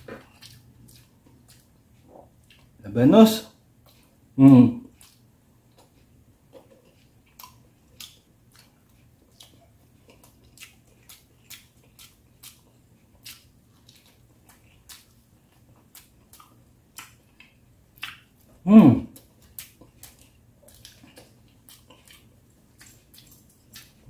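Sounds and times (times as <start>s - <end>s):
person chewing and lip-smacking: 0.0s - 2.8s, 3.8s - 24.0s.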